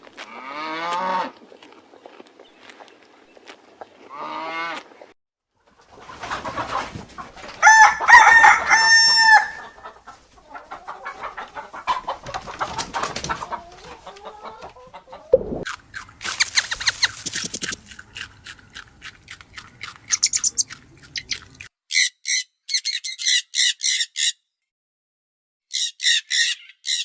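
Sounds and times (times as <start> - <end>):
hens clucking: 0.2 - 5.1, 5.7 - 21.7
rooster crowing: 7.6 - 9.9.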